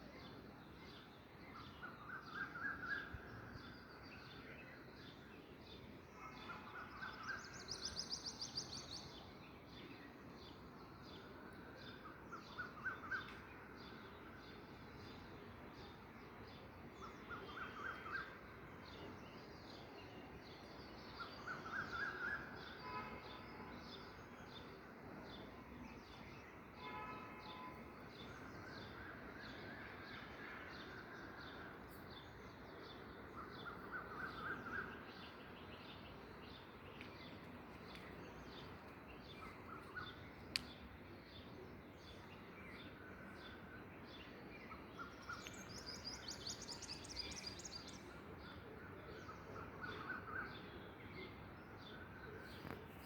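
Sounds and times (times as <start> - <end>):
birds chirping and trilling: 26.4 - 52.8.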